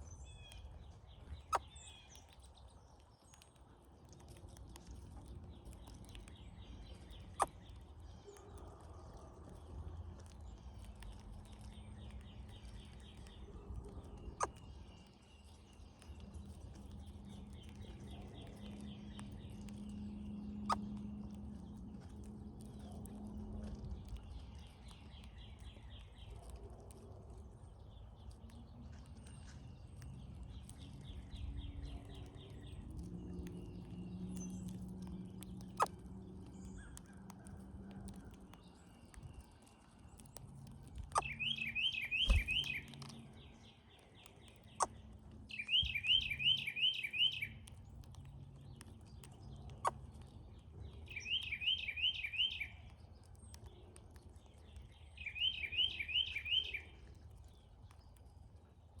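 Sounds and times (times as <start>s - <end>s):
sharp clicks: 42.2s - 43.2s.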